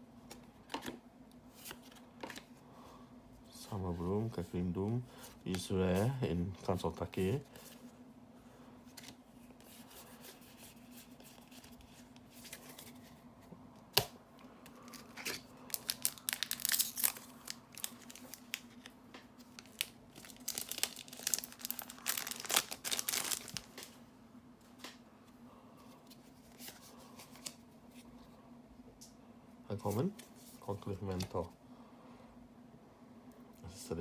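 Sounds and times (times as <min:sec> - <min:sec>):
foil wrapper crinkling: 0:14.8 - 0:24.0.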